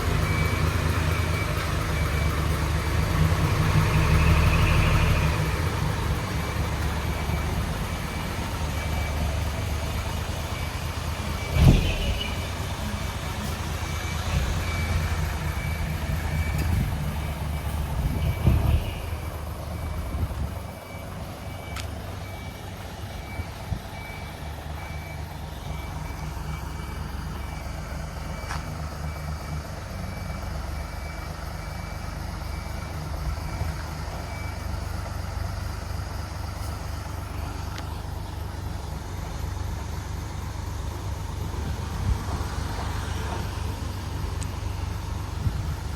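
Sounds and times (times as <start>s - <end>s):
diesel truck engine running: 0.0s - 45.9s.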